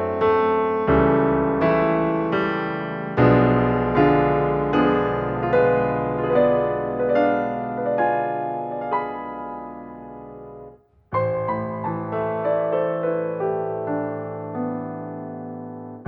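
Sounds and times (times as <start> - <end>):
piano chords ringing: 0.0 - 16.0.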